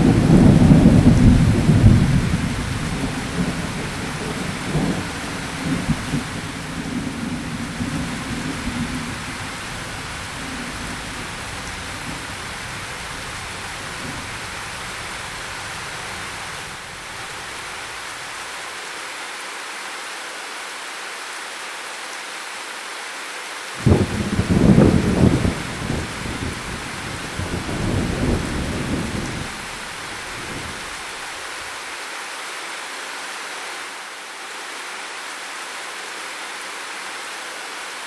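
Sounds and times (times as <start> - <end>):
loud thunderclap: 0.0 - 16.7, 23.8 - 31.2
low thunder rumble: 0.0 - 18.0, 23.8 - 31.2
rain hissing: 0.0 - 18.9, 23.8 - 32.0.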